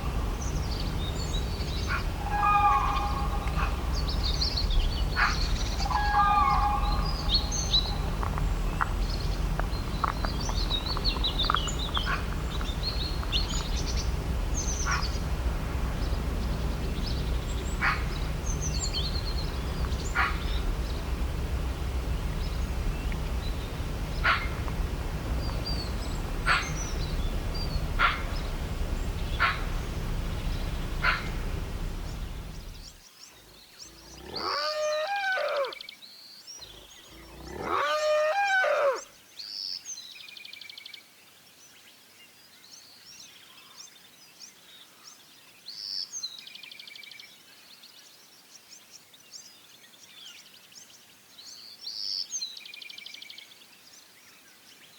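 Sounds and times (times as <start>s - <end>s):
animal calling: 0.0s - 33.0s, 33.8s - 35.8s, 36.6s - 39.0s
low rumble: 0.0s - 33.0s.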